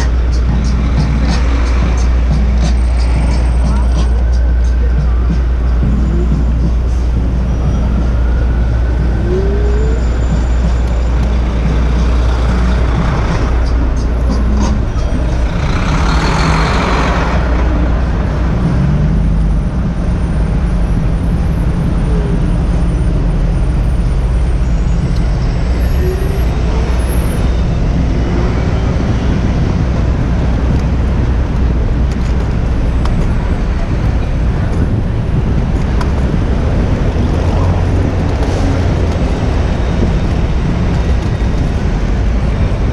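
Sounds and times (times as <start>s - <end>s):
city street traffic: 0.0s - 42.9s.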